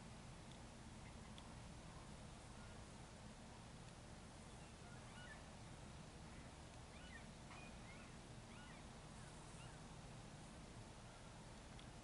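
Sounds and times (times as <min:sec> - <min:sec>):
low background rumble: 0:00.0 - 0:12.0
faint bird chirps: 0:01.0 - 0:02.9, 0:04.4 - 0:10.0.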